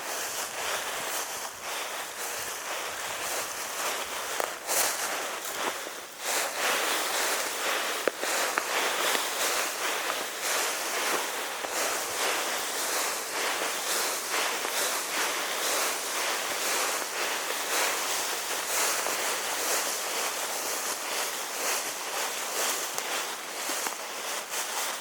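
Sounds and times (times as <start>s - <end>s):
footsteps in dry leaves: 0.0s - 25.0s
steady hiss: 0.0s - 25.0s.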